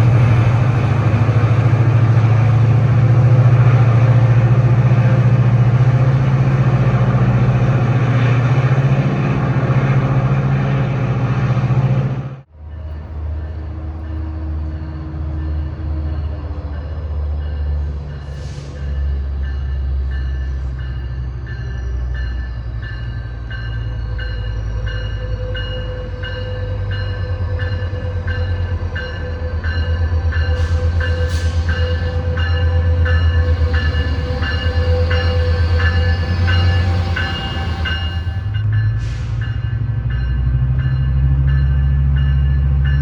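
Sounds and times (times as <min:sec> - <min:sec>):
diesel train engine rumble: 0:00.0 - 0:43.0
bell ringing: 0:33.5 - 0:39.0.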